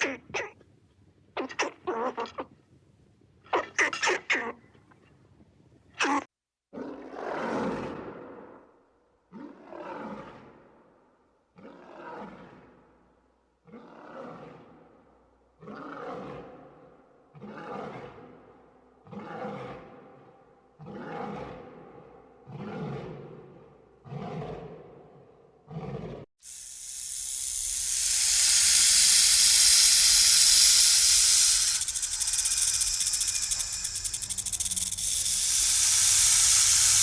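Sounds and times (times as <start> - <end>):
lion roaring: 19.0 - 20.2, 20.8 - 26.2.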